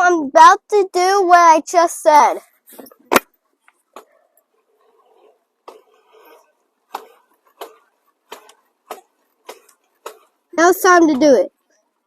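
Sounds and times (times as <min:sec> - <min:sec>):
light sharp knocks: 0:06.9 - 0:10.3.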